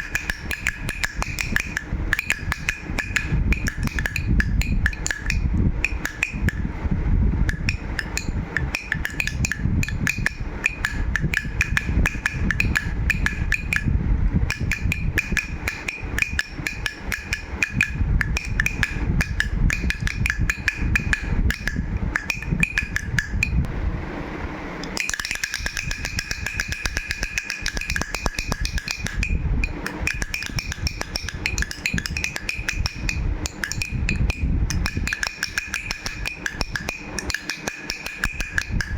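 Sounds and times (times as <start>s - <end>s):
steady high ringing tone: 0.0s - 38.9s
baby rattle shaken: 25.0s - 38.9s.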